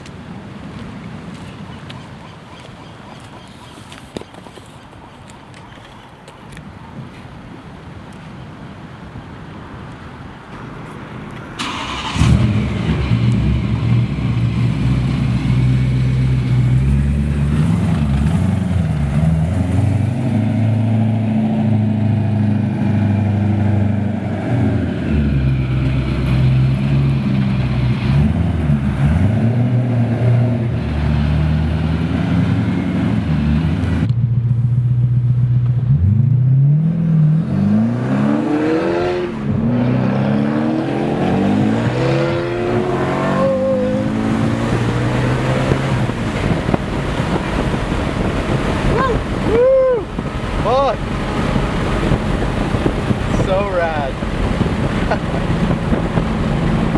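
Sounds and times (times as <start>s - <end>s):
car engine starting and idling: 11.1s - 37.4s, 41.5s - 56.9s
car engine revving: 11.6s - 56.9s.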